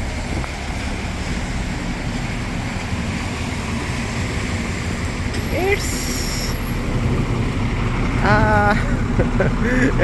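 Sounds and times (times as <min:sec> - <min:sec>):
rain hissing: 0:00.0 - 0:07.9
low hum of engines: 0:00.0 - 0:10.0
tyres swishing on wet road: 0:00.0 - 0:10.0.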